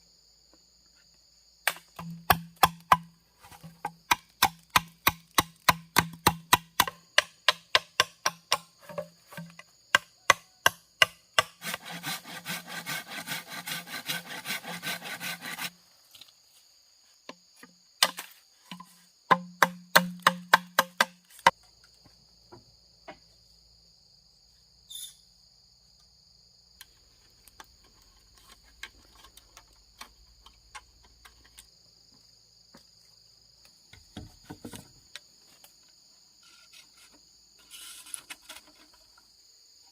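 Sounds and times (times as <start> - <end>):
insect chirring: 0.0 - 11.6, 15.2 - 39.9
wood chopping strikes: 1.6 - 11.8, 18.0 - 21.6.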